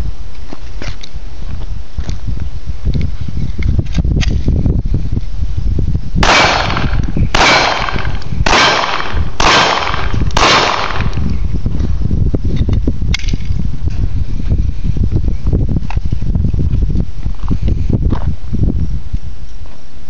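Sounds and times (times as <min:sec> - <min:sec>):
pistol shots ringing: 0:06.2 - 0:11.2.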